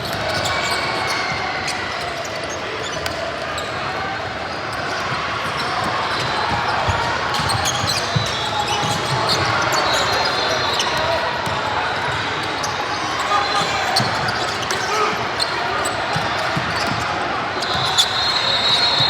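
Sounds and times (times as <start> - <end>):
crowd murmur: 0.0 - 19.0
shoe squeaks: 6.1 - 11.1, 13.2 - 19.0
basketball bouncing on court: 16.1 - 18.0.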